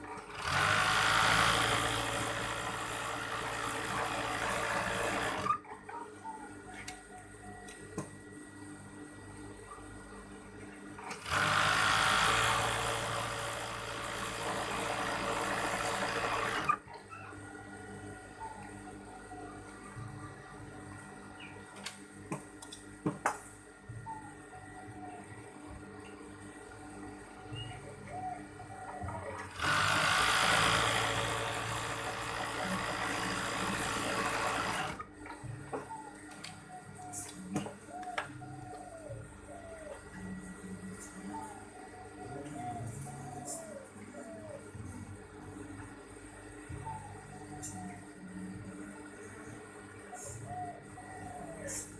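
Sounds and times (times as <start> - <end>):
sewing machine running: 0.2 - 5.6, 11.1 - 16.8, 29.4 - 35.0
low motor hum: 6.2 - 23.0, 23.6 - 51.9.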